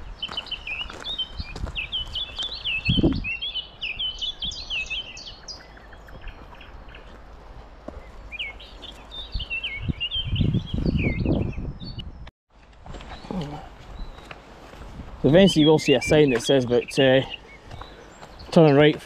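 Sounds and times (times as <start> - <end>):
songbird chirping: 0.0 - 19.0.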